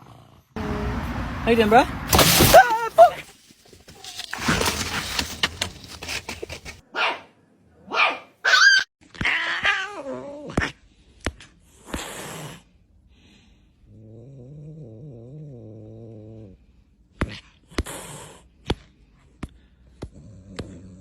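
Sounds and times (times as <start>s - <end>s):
scuffling: 1.6s - 6.8s
dog yipping and growling: 2.1s - 3.3s.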